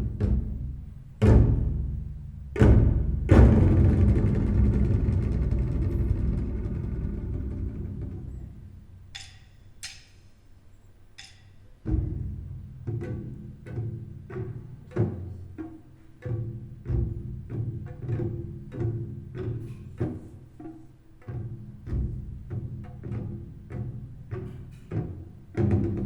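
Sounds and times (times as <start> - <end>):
deep plucked bass notes: 3.3 - 8.8.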